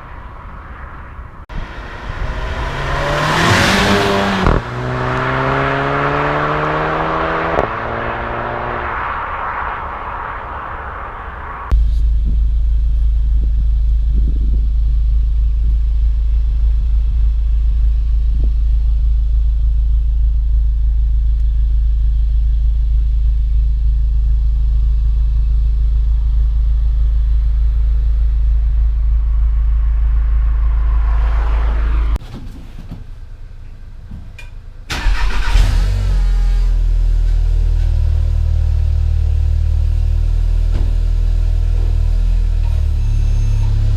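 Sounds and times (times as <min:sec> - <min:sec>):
car engine and exhaust droning: 0:00.0 - 0:43.9
engine starting and idling: 0:34.9 - 0:36.6.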